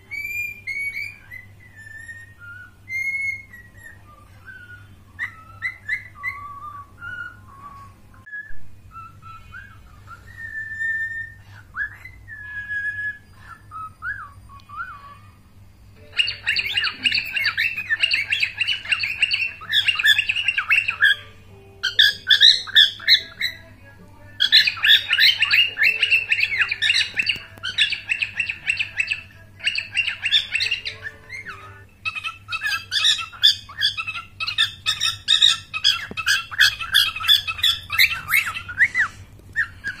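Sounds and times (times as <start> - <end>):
cockatiel chattering and squawking: 16.0 - 23.7, 24.4 - 40.0.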